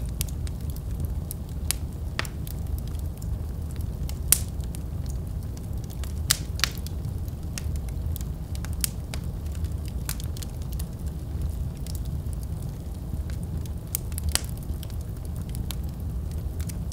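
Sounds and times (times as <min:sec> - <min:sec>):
fire crackles and pops: 0:00.0 - 0:16.9
low rumble of flames: 0:00.0 - 0:16.9.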